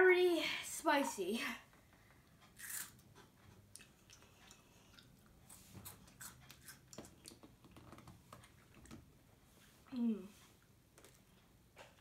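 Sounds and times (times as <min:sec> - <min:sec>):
crunchy snack chewing: 0:02.6 - 0:03.0.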